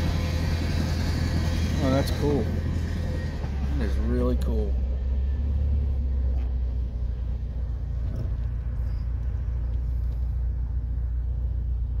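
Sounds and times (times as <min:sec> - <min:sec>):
freight train rolling past: 0:00.0 - 0:05.8.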